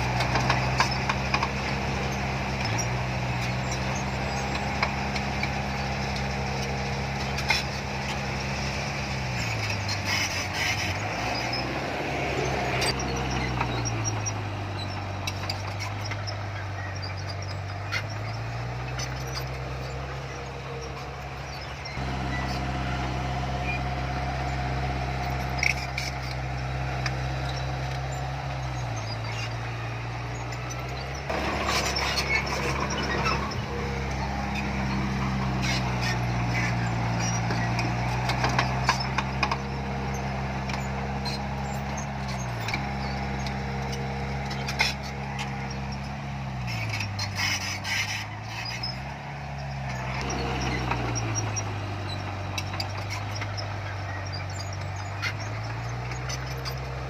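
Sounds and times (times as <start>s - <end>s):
metallic clanks and rattles: 0.0s - 8.4s, 24.4s - 57.0s
heavy machinery diesel engine: 0.0s - 57.0s.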